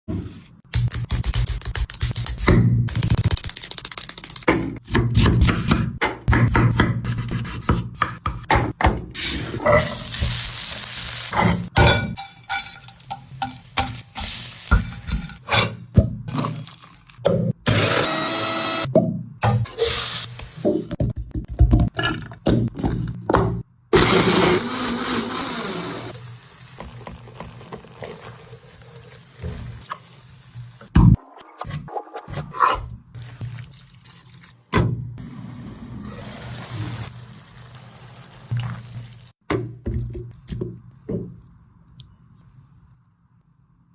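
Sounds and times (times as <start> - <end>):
kitchen blender running: 17.7 - 18.9, 24.0 - 26.1.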